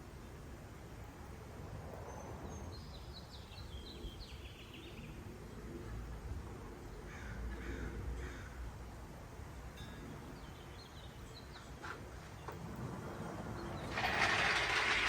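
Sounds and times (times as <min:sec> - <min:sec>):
outdoor background hiss: 0:00.0 - 0:15.0
songbird chirps: 0:02.0 - 0:05.2, 0:09.8 - 0:13.9.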